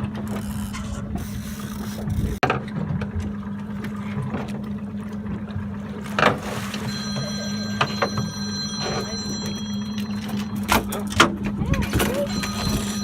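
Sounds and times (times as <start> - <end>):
boat engine running: 0.0 - 13.0
high steady tone: 6.6 - 11.2, 12.0 - 13.0.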